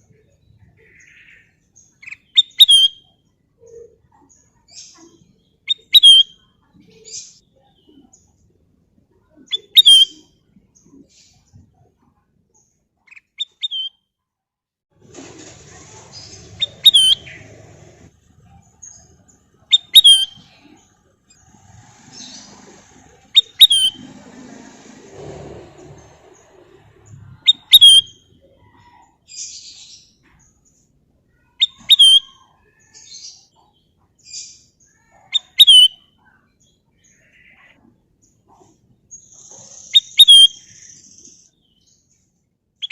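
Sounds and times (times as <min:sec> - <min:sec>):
raspy bird chirps: 0:13.1 - 0:14.0, 0:16.5 - 0:17.4, 0:19.7 - 0:22.7, 0:23.3 - 0:24.0, 0:27.4 - 0:29.8, 0:31.3 - 0:33.2, 0:34.3 - 0:36.2, 0:39.2 - 0:41.5
bird whistling phrases: 0:19.7 - 0:20.5, 0:31.6 - 0:32.5, 0:35.3 - 0:36.0, 0:40.0 - 0:40.7
bird calling in whistled notes: 0:31.6 - 0:32.4, 0:35.4 - 0:36.0.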